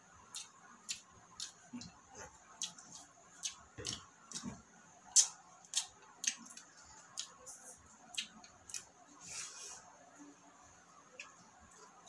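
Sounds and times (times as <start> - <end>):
chewing and lip-smacking: 5.2 - 8.9.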